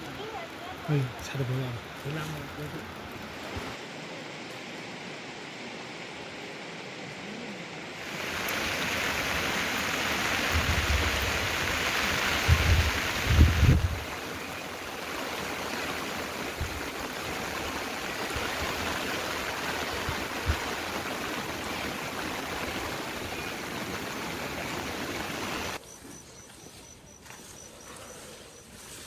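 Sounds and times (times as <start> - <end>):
running water rushing: 0.0 - 3.8, 8.0 - 25.8.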